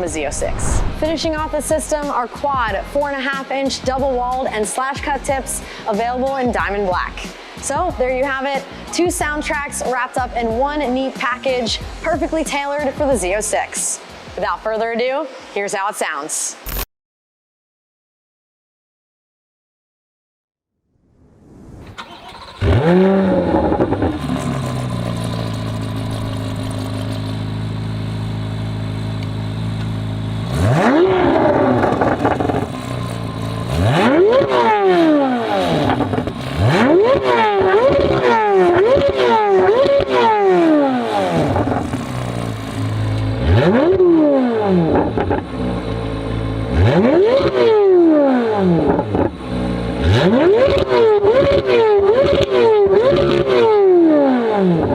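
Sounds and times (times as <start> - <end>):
sports car engine revving: 22.0 - 54.9.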